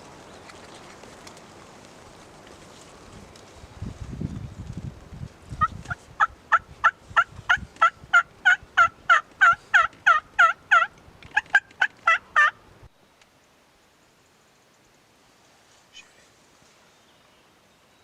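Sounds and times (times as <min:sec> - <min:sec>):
low rumble of handling or wind: 0:00.0 - 0:13.0
turkey yelping: 0:07.2 - 0:12.6.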